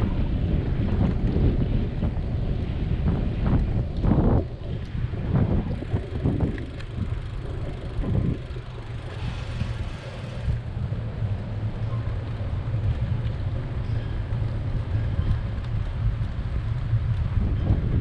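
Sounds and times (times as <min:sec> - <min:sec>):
passing traffic rumble: 0:00.0 - 0:18.0
wind buffeting microphone: 0:00.0 - 0:18.0.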